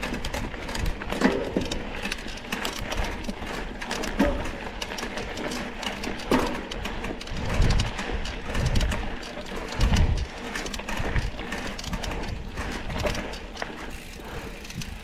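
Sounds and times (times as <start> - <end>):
mountain bike rattling on dirt trail: 0.0 - 15.0.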